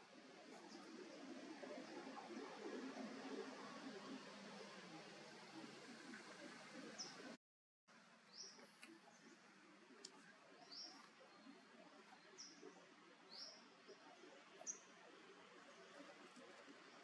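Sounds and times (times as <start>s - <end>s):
forest background: 0.0s - 17.0s
bird chirping: 8.3s - 9.4s, 10.5s - 15.0s.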